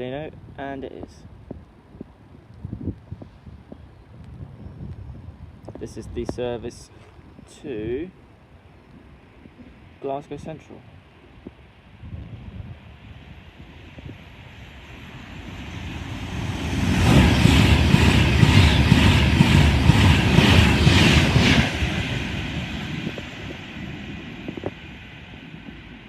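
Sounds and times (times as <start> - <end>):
electric train passing fast: 12.4 - 26.0.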